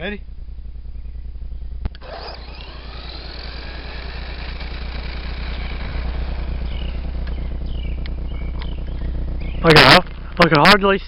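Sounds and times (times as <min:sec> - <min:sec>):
steady low rumble: 0:00.0 - 0:11.0
rc car motor whine: 0:02.0 - 0:10.0.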